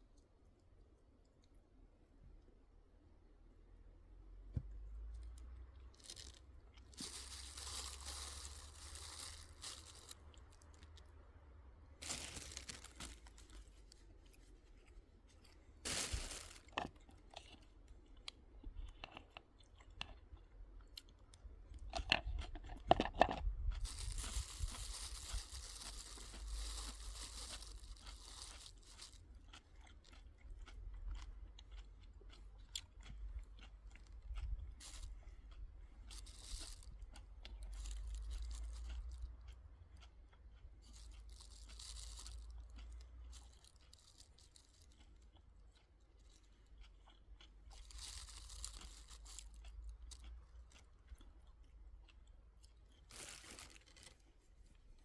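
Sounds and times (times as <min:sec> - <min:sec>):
crunching and rustling handling: 0:04.5 - 0:11.2, 0:11.9 - 0:55.0.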